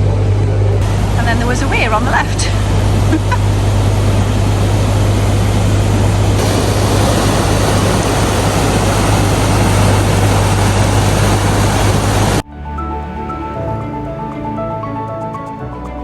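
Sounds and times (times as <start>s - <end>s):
water rushing over weir: 0.8s - 12.4s.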